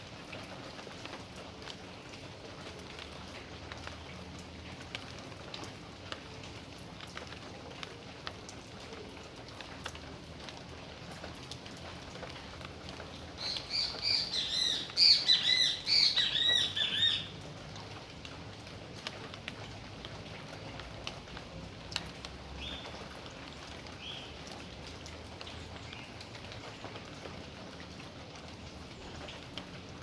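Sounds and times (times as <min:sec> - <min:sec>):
steady rain falling: 0:00.0 - 0:30.0
drips ticking on surfaces: 0:00.2 - 0:30.0
bird chirping rapidly: 0:13.4 - 0:17.3.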